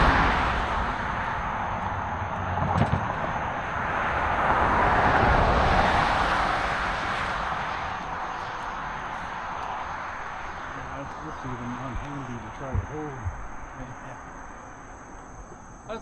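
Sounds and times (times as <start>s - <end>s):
water rushing roar: 0.0s - 14.3s.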